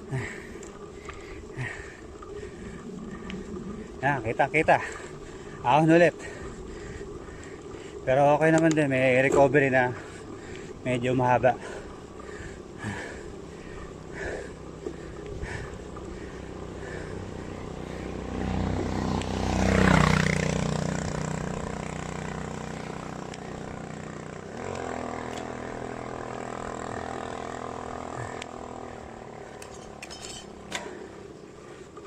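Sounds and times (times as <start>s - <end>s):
steady engine hum: 0.0s - 32.0s
vehicle passing by: 9.2s - 31.9s.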